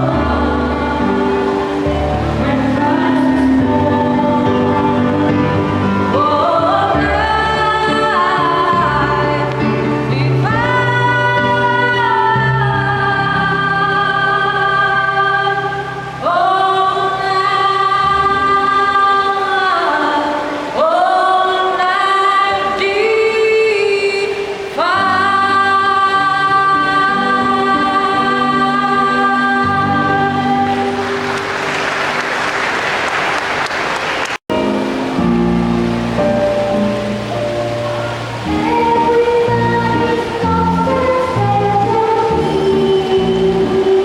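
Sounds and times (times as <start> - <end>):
music with sustained notes: 0.0 - 33.4, 34.5 - 44.0
children's choir singing: 0.0 - 34.3, 37.7 - 44.0
audience applauding: 30.8 - 34.5.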